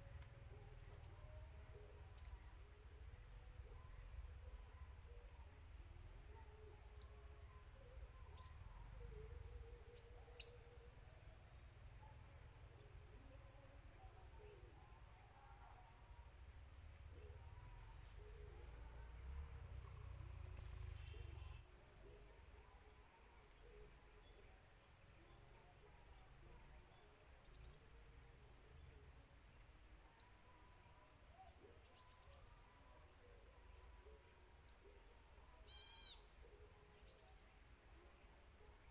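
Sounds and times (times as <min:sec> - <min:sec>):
high-pitched insect trilling: 0:19.6 - 0:21.6, 0:35.6 - 0:36.4.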